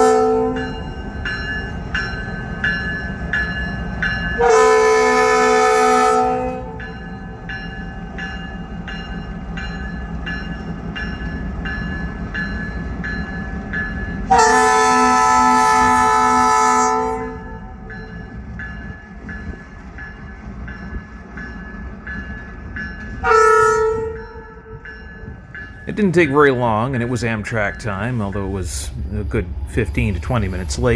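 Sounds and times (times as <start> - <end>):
locomotive air horn: 0.0 - 0.8, 4.4 - 7.0, 14.3 - 17.8, 23.2 - 24.8
locomotive bell ringing: 0.0 - 30.9.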